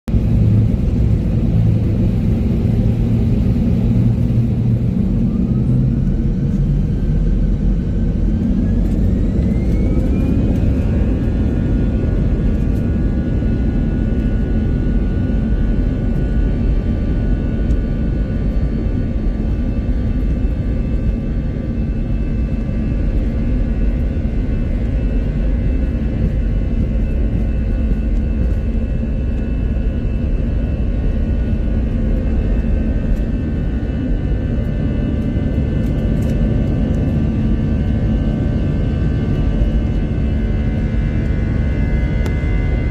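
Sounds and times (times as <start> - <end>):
jet engines spooling up: 0.2 - 13.6.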